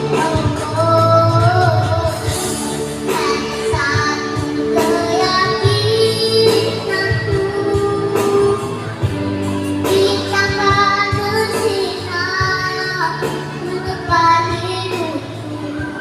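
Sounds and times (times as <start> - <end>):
child singing: 0.0 - 9.1, 9.8 - 16.0
musical accompaniment with steady beat: 0.0 - 16.0.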